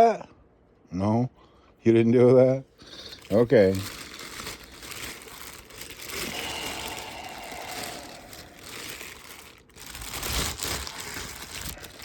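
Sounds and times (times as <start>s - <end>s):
crinkling and rustling: 2.8s - 12.0s.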